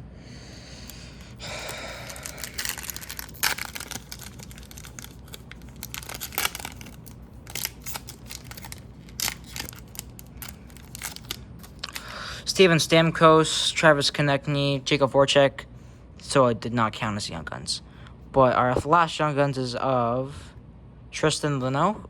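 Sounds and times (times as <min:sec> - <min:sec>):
card pack wrapper tearing: 0:00.8 - 0:12.1
cards rustling and flicking: 0:00.8 - 0:12.1.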